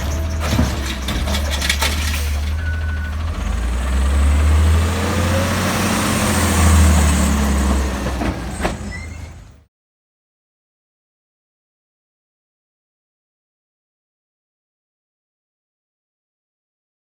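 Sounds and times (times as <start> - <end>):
garbage truck diesel engine: 0.0 - 9.7.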